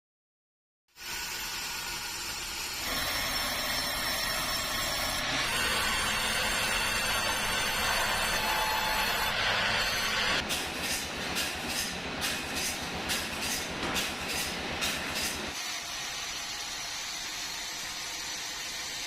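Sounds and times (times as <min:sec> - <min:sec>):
sawmill machinery whining: 0:01.4 - 0:10.4.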